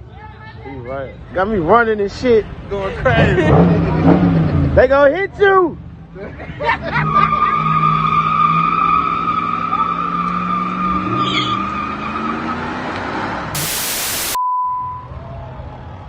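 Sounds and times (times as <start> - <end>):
loud hiss burst: 13.6 - 14.4
steady beep: 13.6 - 15.1.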